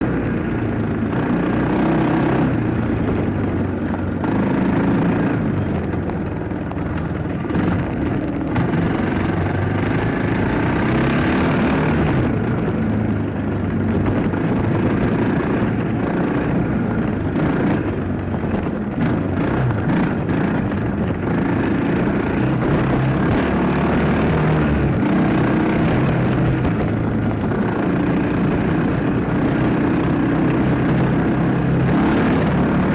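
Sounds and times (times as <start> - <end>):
dirt bike engine revving: 1.1 - 3.2, 8.5 - 12.4, 19.0 - 32.9.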